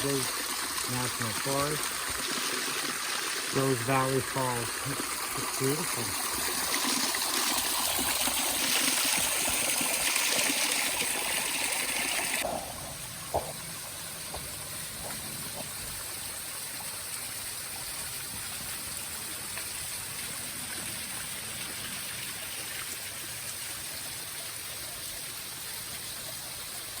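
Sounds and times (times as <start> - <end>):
waterfall and stream rushing: 0.0 - 27.0.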